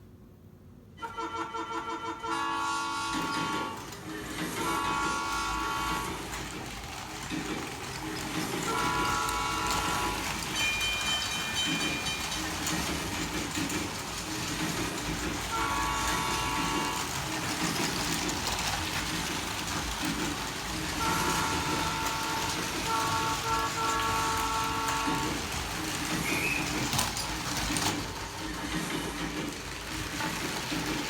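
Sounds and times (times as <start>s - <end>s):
train running on track: 0.5s - 31.0s
multi-tone train horn blasts: 1.0s - 6.6s, 8.5s - 10.6s, 15.4s - 17.6s, 20.6s - 26.0s.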